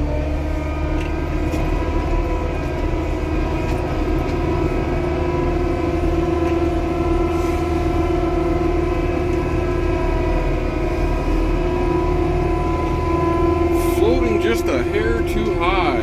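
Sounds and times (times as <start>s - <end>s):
diesel engine drone: 0.0s - 16.0s
steady whine: 12.7s - 16.0s.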